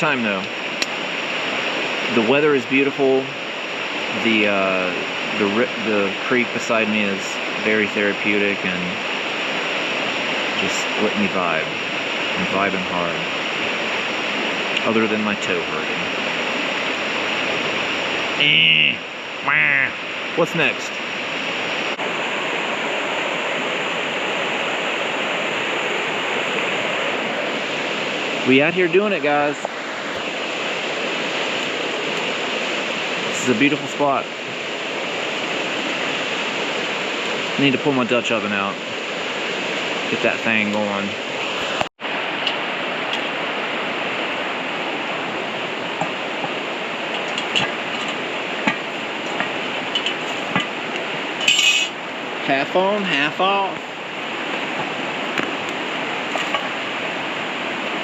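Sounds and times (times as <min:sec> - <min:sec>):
creek water rushing: 0:00.0 - 0:58.0.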